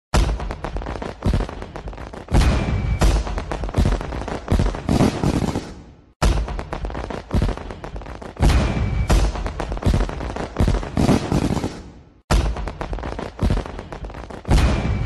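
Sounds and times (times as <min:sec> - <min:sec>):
fireworks bangs and crackles: 0:00.1 - 0:15.0
firework whistle: 0:02.3 - 0:03.4, 0:08.4 - 0:09.7.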